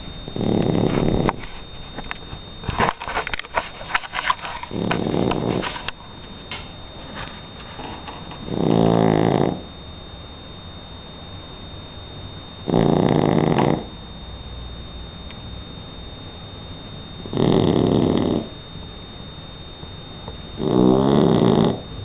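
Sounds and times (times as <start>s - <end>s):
puppy snoring: 0.3s - 1.5s, 4.5s - 5.9s, 7.8s - 9.7s, 12.6s - 14.0s, 17.2s - 18.6s, 20.6s - 22.0s.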